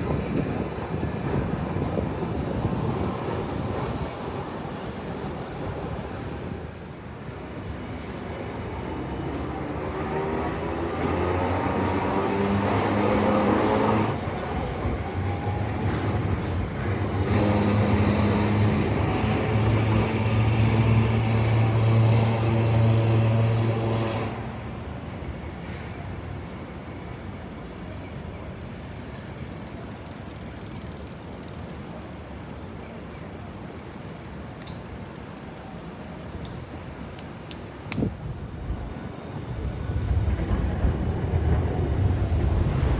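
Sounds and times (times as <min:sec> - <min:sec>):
street noise: 0:00.0 - 0:42.9
streetcar electric motor hum: 0:00.0 - 0:42.9.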